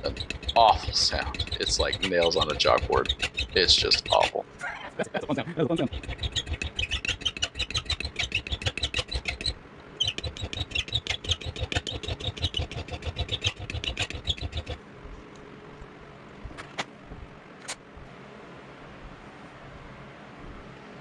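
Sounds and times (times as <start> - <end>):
hand file screeching on metal: 0.0 - 4.4, 5.8 - 14.8.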